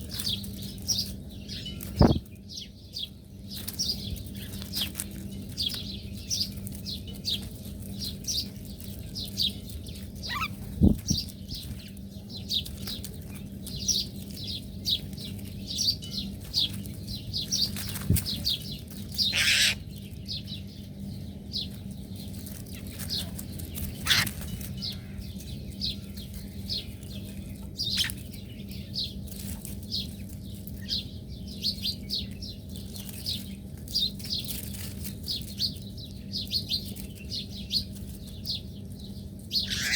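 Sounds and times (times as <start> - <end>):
small birds chirping: 0.0 - 39.9
rustle: 3.5 - 20.2, 29.2 - 31.1, 32.7 - 35.8.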